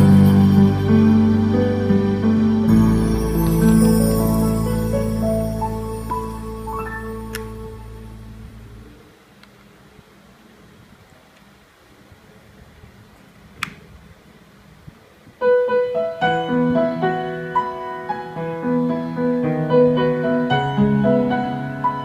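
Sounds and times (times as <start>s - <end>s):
background piano music: 0.0s - 9.0s, 15.4s - 22.0s
faint hiss: 0.0s - 22.0s
sharp click: 13.6s - 13.9s.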